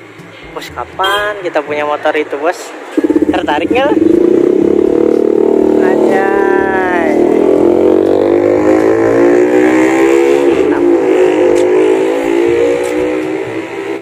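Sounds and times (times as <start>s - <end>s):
motorcycle engine revving: 2.8s - 14.0s.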